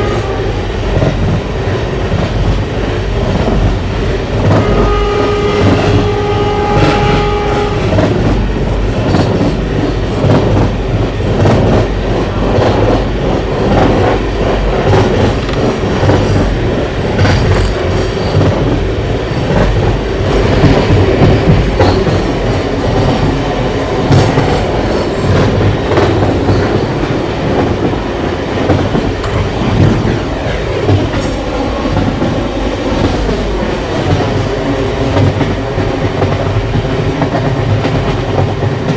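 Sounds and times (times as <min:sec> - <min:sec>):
train horn: 0:00.0 - 0:00.6, 0:04.5 - 0:08.2
train rumbling past: 0:00.0 - 0:38.9.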